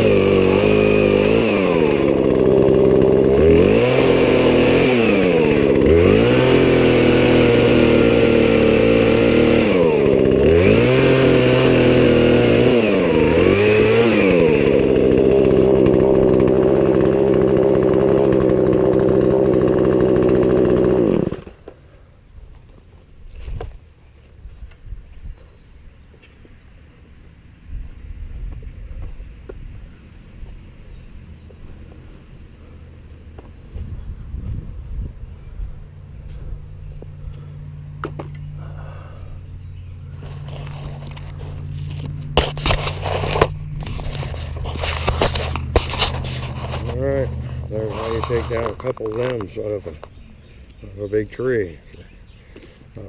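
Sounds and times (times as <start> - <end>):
chainsaw running at high revs: 0.0 - 21.7, 40.1 - 50.1.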